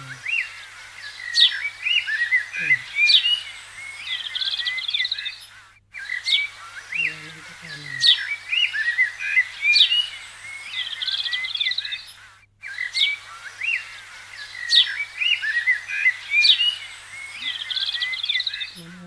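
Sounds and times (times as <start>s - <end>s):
songbirds chirping and singing: 0.0s - 19.0s.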